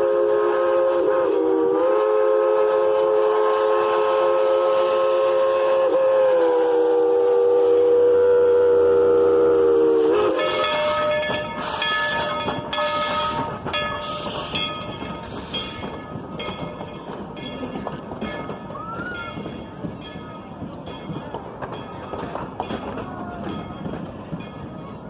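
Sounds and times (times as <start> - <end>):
steam locomotive chime whistle: 0.0 - 16.2
steam engine chuffing: 0.0 - 25.0.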